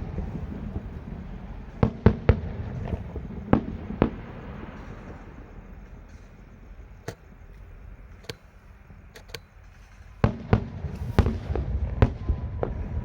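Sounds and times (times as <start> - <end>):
fireworks bangs: 0.0 - 13.0
low rumble: 0.0 - 13.0.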